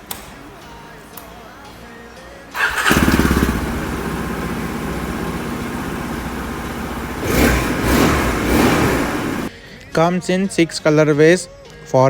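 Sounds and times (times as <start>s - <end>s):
motorcycle engine starting and idling: 2.5s - 9.5s
engine revving: 2.6s - 9.5s.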